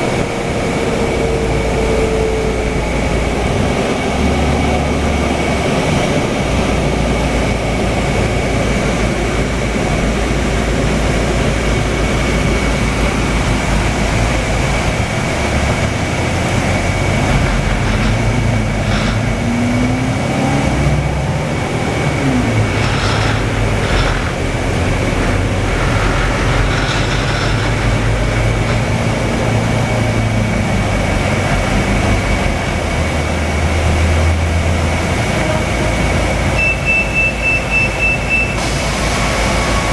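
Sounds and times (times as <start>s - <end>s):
bus engine and road noise: 0.0s - 39.9s
constant high whine: 0.0s - 39.9s
short rattles: 17.0s - 19.8s, 21.9s - 30.2s.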